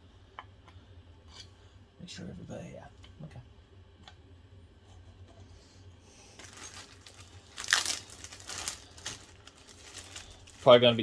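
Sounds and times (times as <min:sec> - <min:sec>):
crinkly wrapping rustling: 0:06.3 - 0:11.0
wrapping crackle: 0:06.4 - 0:11.0.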